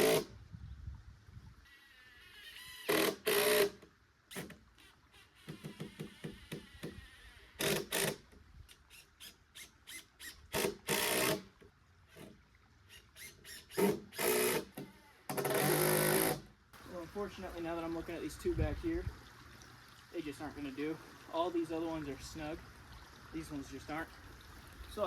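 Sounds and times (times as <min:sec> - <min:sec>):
cordless driver sinking screws: 0:02.3 - 0:11.4, 0:12.9 - 0:16.4.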